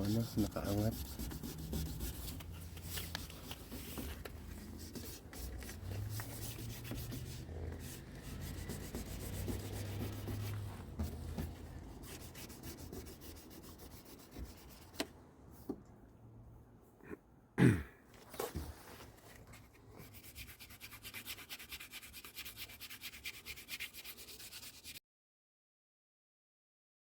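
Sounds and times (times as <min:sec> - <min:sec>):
sandpaper rubbing on car body: 0:00.0 - 0:14.9, 0:20.0 - 0:25.0.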